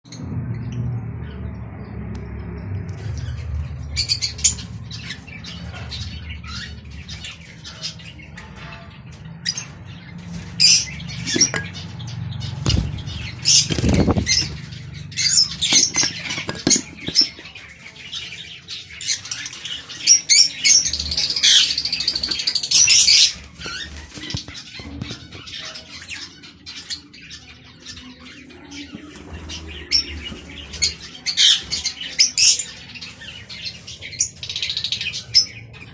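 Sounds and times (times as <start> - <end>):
birds scrabbling and clicking: 2.9 - 35.9
wings fluttering: 12.6 - 17.5.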